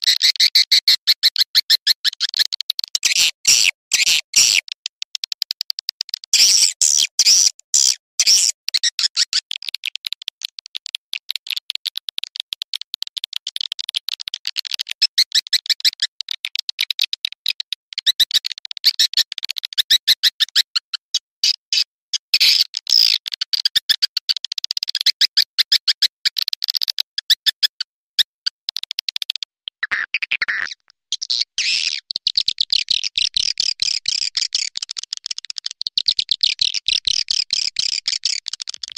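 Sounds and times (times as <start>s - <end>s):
high-pitched bird twittering: 6.3s - 9.3s, 29.3s - 34.8s.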